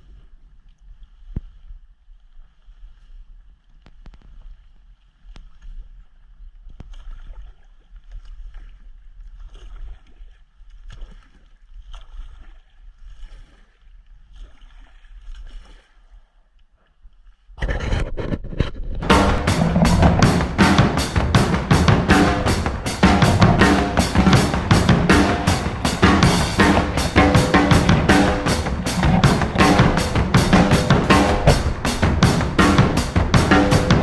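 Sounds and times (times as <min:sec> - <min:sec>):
loud music with drums: 0:19.0 - 0:34.0
steady low rumble: 0:19.0 - 0:34.0.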